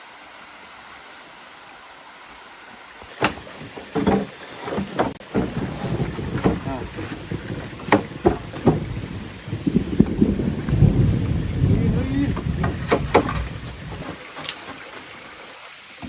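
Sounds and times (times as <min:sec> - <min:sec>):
heavy rain hissing: 0:00.0 - 0:16.0
sharp knocks: 0:03.1 - 0:09.2, 0:12.1 - 0:14.8
thunder rumbling: 0:05.3 - 0:14.2.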